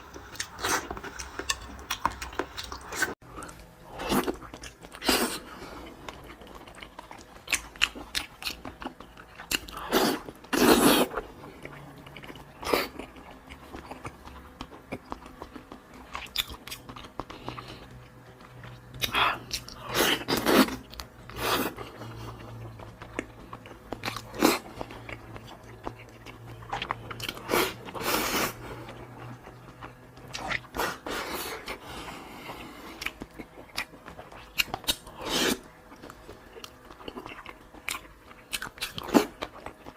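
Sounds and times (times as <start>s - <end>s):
lip smacking: 0.0s - 3.2s
person chewing crunchy food: 0.0s - 39.9s.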